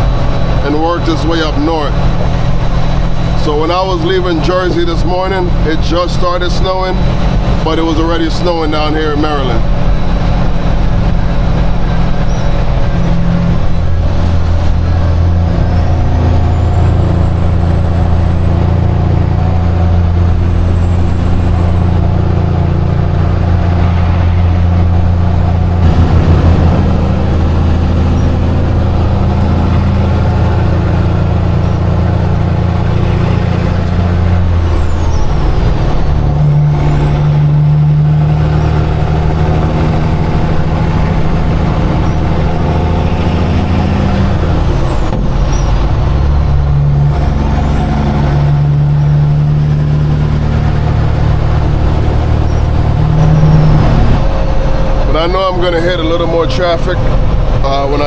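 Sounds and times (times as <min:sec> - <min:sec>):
truck diesel engine running: 0:00.0 - 0:58.0
faint high whistle: 0:12.1 - 0:12.7.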